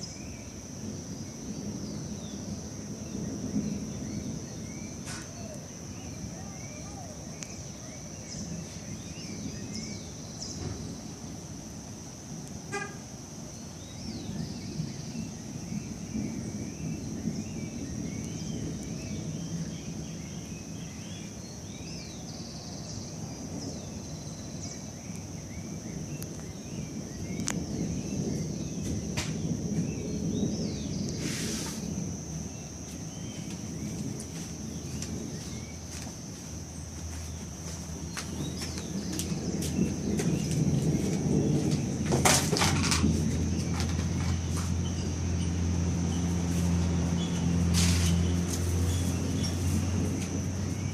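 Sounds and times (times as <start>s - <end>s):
birds chirping: 0.0s - 11.3s, 12.7s - 50.9s
high insect drone: 0.0s - 50.9s
low rumbling: 36.6s - 50.9s.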